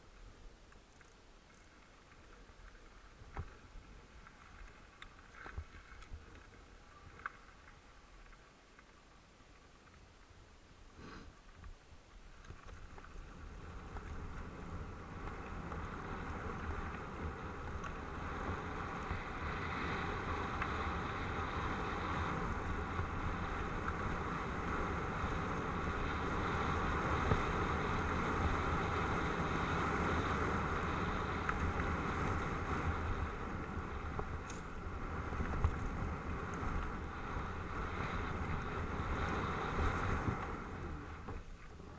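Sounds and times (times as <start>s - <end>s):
bike tyres rolling on dirt: 0.0s - 41.9s
wind rushing over microphone: 13.3s - 41.5s.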